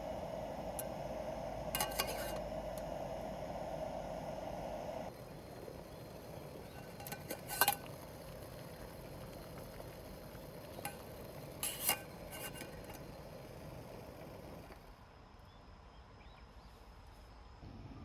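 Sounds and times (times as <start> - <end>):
metal utensils clinking on cookware: 1.8 - 2.4.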